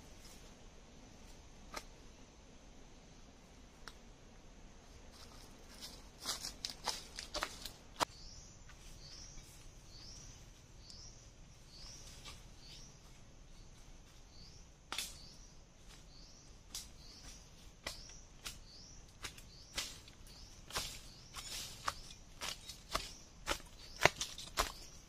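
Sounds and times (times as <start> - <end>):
footsteps through dry leaves: 5.1 - 8.0, 19.2 - 25.0
bird chirping: 7.5 - 25.0.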